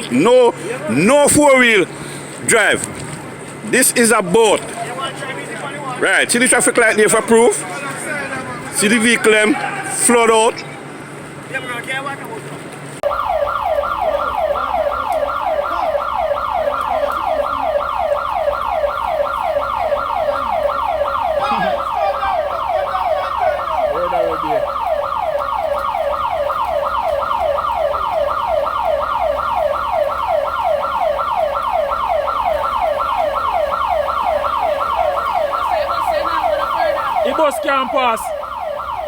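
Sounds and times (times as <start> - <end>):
electronic siren yelping: 13.0 - 39.0.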